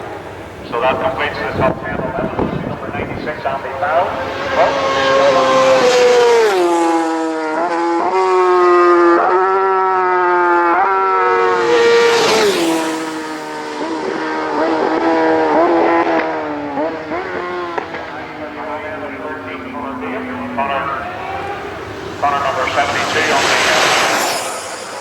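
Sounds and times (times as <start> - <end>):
racing motorcycles passing: 0.0 - 25.0.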